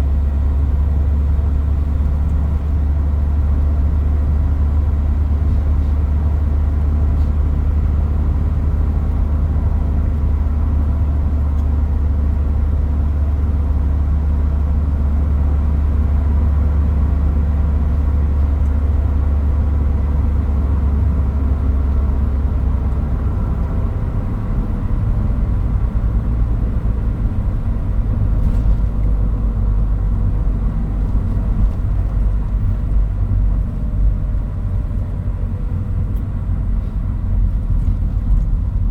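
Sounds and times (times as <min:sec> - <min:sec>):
road rumble: 0:00.0 - 0:38.9.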